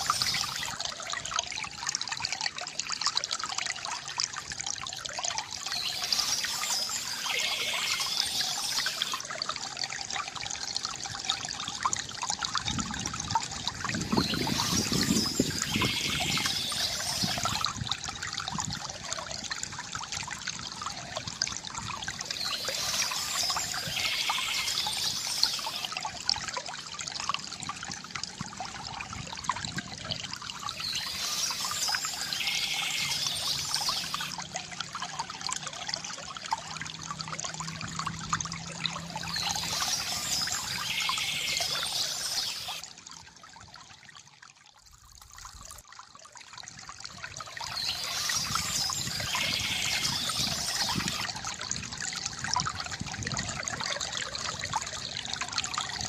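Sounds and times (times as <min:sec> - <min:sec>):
birds chirping: 0:00.0 - 0:00.7, 0:05.7 - 0:09.2, 0:14.1 - 0:17.6, 0:30.7 - 0:34.3, 0:39.2 - 0:42.8, 0:47.7 - 0:51.2
water trickling from fountain: 0:00.0 - 0:56.0.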